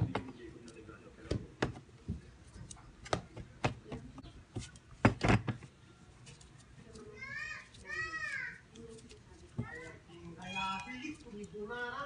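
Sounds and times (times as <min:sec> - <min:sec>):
dough knocking on plastic tray: 0:05.0 - 0:05.7.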